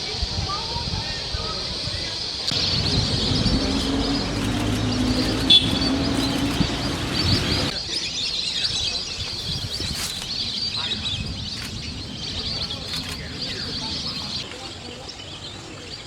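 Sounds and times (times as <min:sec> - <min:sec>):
ducks whistling: 0:02.5 - 0:07.7.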